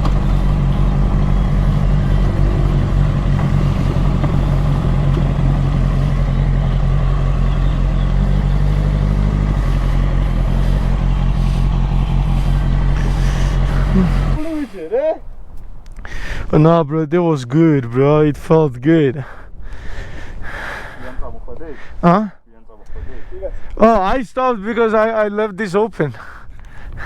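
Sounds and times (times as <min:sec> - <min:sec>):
motorcycle engine running: 0:00.0 - 0:15.6
wind and road noise: 0:00.0 - 0:16.7, 0:18.2 - 0:24.9, 0:26.2 - 0:27.0.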